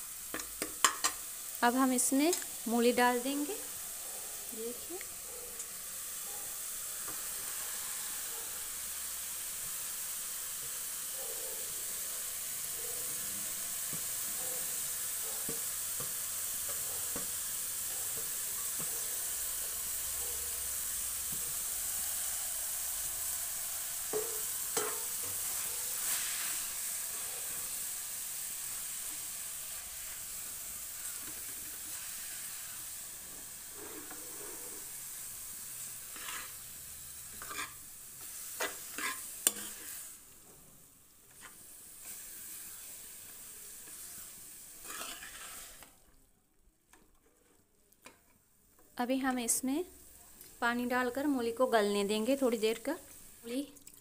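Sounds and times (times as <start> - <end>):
food sizzling in a pan: 0.0 - 54.0
spoon scraping and tapping pan: 0.3 - 1.2, 15.4 - 17.4, 24.1 - 25.5, 37.3 - 37.8, 38.6 - 40.0.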